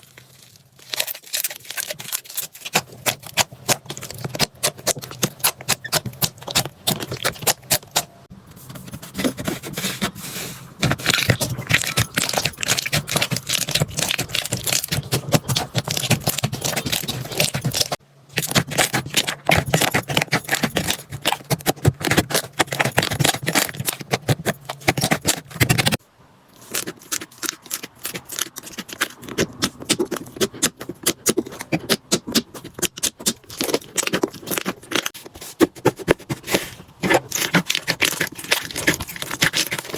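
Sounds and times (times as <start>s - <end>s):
slime crackling and popping: 11.0s - 24.2s.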